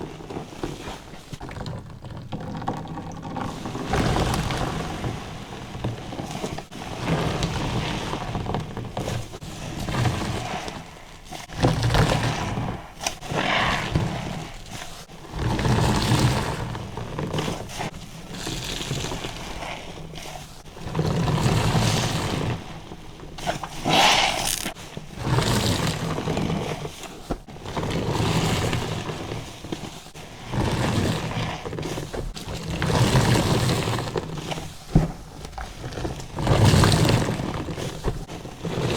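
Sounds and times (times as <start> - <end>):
sponge squelching with lather: 0.0 - 22.7, 23.4 - 27.2.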